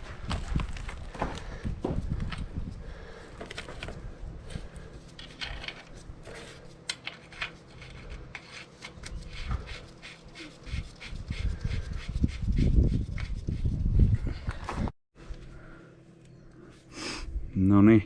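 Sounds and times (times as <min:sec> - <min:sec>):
tools clicking and rubbing: 0:05.0 - 0:12.6.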